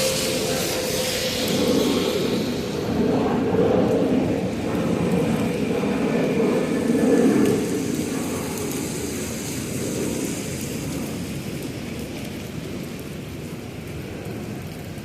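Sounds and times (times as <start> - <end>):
large vehicle passing: 0.0 - 5.6.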